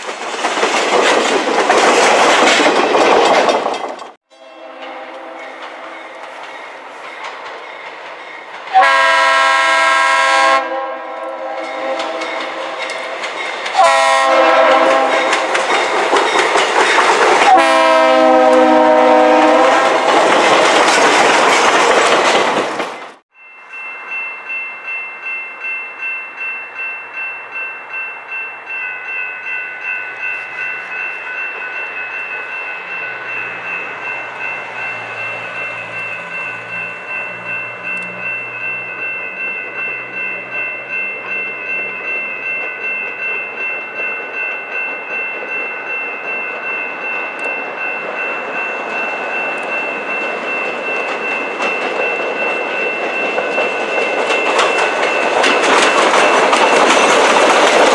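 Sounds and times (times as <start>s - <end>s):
train passing: 0.0s - 57.9s
locomotive horn blasts: 4.3s - 6.2s, 8.7s - 12.7s, 13.8s - 15.4s, 17.5s - 20.0s
crossing bell ringing: 4.3s - 22.1s, 23.2s - 57.9s.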